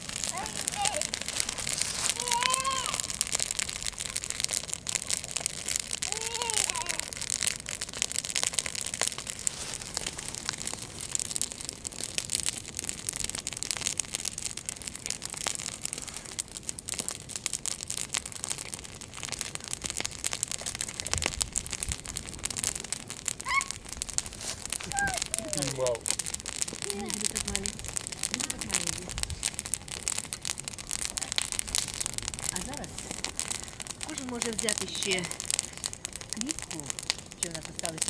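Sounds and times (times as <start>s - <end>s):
bonfire crackling and popping: 0.0s - 38.0s.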